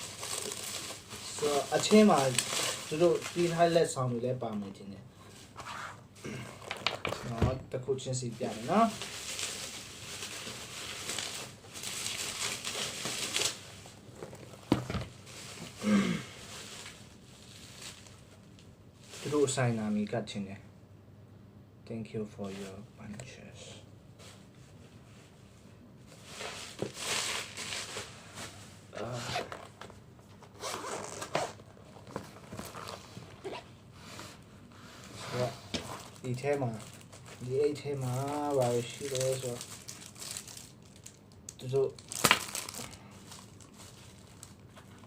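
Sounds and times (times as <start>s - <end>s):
packaging being torn open: 0.0s - 3.5s, 36.0s - 45.0s
packaging rustling and crinkling: 0.0s - 4.6s, 6.6s - 19.6s, 26.1s - 34.4s, 35.0s - 45.0s.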